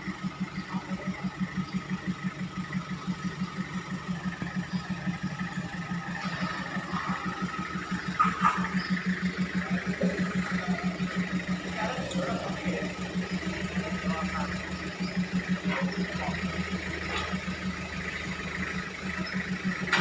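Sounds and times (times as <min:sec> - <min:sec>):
grain dryer machinery humming: 0:02.5 - 0:18.5.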